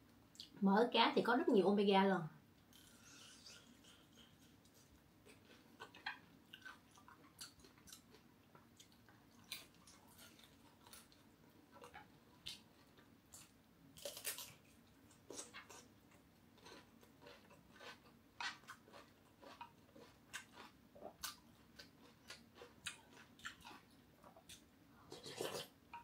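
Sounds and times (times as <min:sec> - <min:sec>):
crunchy cucumber chewing: 0:02.7 - 0:25.8.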